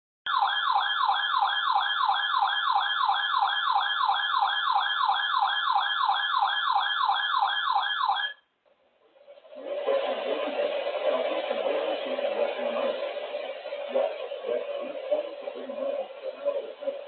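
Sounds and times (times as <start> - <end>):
electronic siren alert tone: 0.3 - 8.4.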